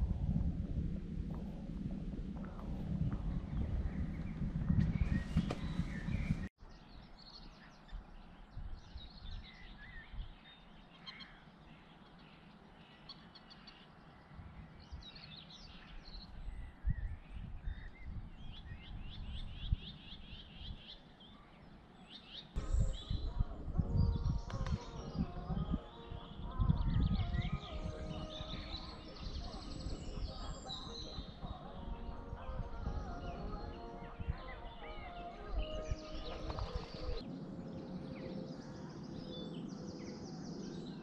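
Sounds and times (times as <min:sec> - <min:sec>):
low rumble: 0:00.0 - 0:06.5, 0:22.6 - 0:34.4
songbirds singing: 0:00.0 - 0:41.0.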